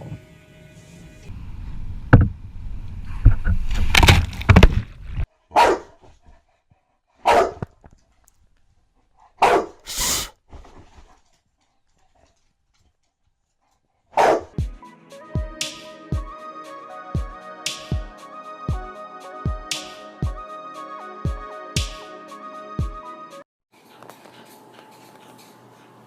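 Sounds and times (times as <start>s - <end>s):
dog barking: 5.5s - 6.1s, 7.2s - 7.7s, 9.4s - 9.8s, 14.1s - 14.6s.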